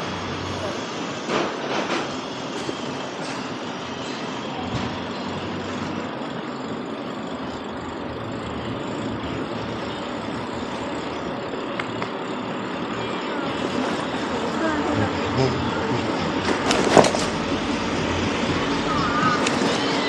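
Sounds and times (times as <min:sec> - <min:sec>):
city street traffic: 0:00.0 - 0:20.0
faint clicks: 0:08.4 - 0:14.3.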